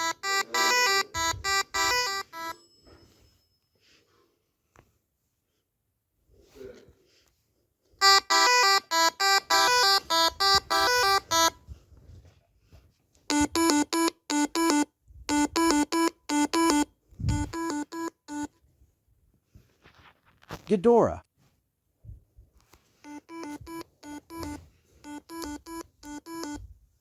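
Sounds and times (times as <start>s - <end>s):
electronic beeping tune: 0.0s - 2.6s, 8.0s - 11.5s, 13.3s - 18.5s, 23.1s - 26.6s.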